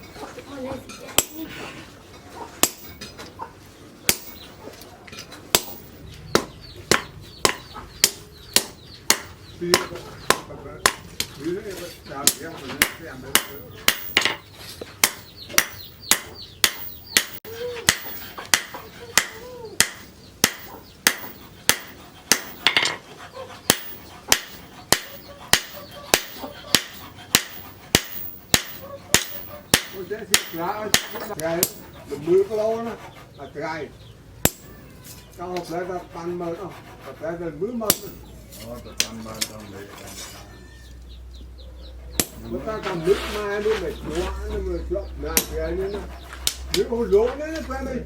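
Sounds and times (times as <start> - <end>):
hammer striking steel on anvil: 1.2 - 1.5, 2.6 - 3.2, 4.1 - 4.5, 5.5 - 11.2, 12.2 - 23.0, 23.7 - 31.9, 34.4 - 34.8, 42.2 - 42.6, 45.4 - 45.6.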